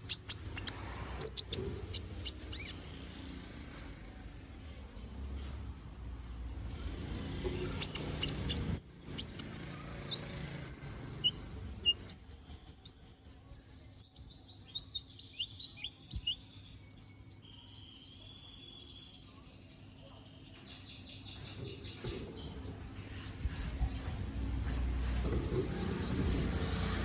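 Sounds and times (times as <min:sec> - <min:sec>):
sunbird chirping and trilling: 0:00.0 - 0:02.8, 0:06.7 - 0:23.6.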